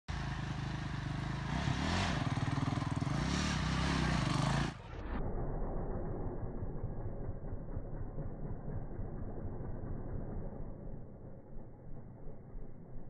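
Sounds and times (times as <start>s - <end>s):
dirt bike engine revving: 0.1s - 4.9s.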